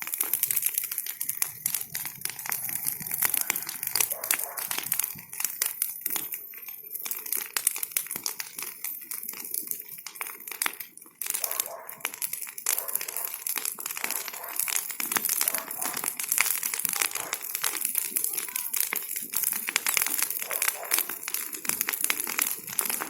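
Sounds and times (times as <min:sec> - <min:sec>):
bonfire crackling and popping: 0:00.0 - 0:23.0.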